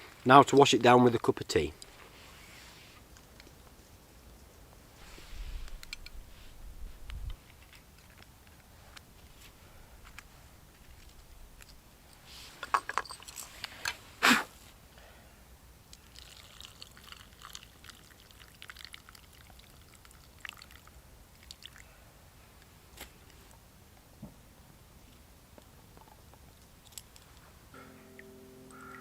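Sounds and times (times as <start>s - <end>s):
water pouring and dripping: 15.9s - 21.8s.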